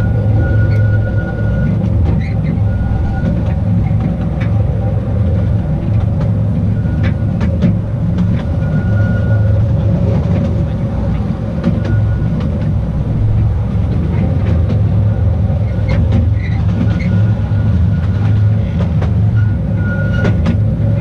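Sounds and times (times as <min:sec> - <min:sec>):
high wheel squeal: 0:00.0 - 0:04.0, 0:06.6 - 0:13.4, 0:15.0 - 0:21.0
train rumbling on track: 0:00.0 - 0:21.0
wheels clicking over rail joints: 0:00.0 - 0:21.0.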